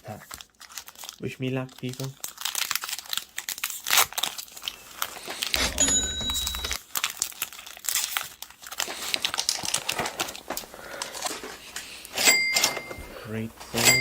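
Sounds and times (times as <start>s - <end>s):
foil wrapper crinkling and tearing: 0.0s - 5.8s, 6.7s - 12.1s.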